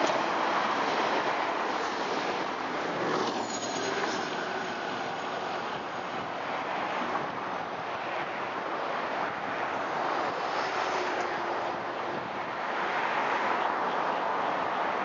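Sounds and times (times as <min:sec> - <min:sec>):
diesel train passing: 0:00.0 - 0:07.6.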